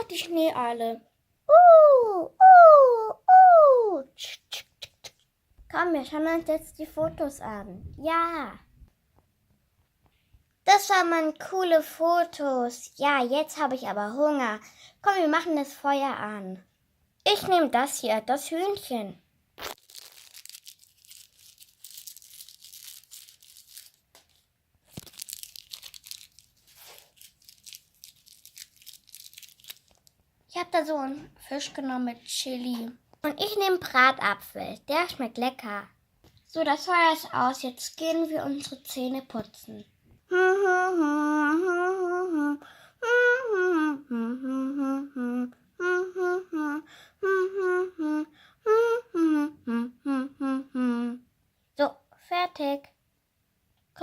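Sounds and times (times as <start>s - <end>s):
child humming a tune: 1.5s - 4.0s, 40.3s - 51.3s
plastic pieces crinkling: 19.6s - 30.2s.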